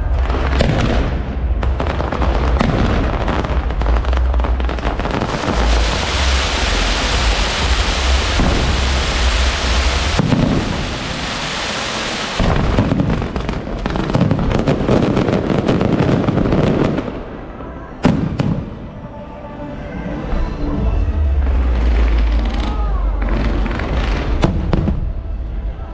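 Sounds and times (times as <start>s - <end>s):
fireworks bangs and crackling: 0.0s - 19.0s, 21.2s - 25.8s.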